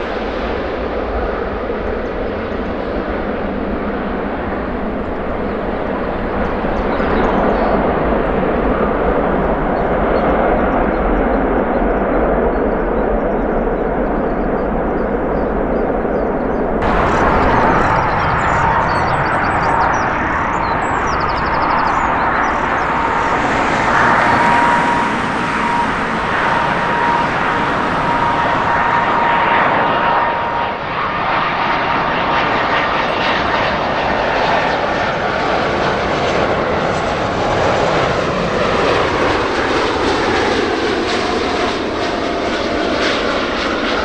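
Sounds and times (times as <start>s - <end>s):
jet engines running: 0.0s - 44.0s
high jet whine: 1.5s - 11.0s, 13.4s - 32.8s.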